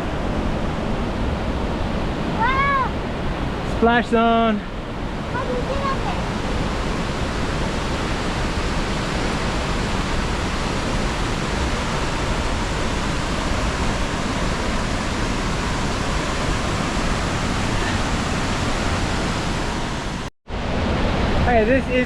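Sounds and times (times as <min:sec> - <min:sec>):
waterfall crashing into pool: 0:02.4 - 0:02.9, 0:05.3 - 0:22.0.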